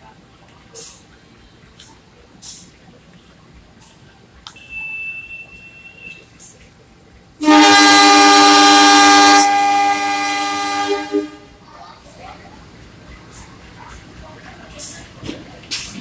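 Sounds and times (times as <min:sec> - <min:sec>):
shrill whistle: 0:04.6 - 0:06.3
diesel locomotive horn blast: 0:07.4 - 0:11.6.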